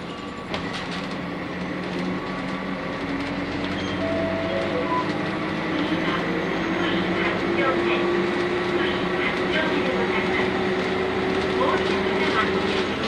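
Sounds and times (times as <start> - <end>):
bus engine accelerating: 0.0 - 13.0.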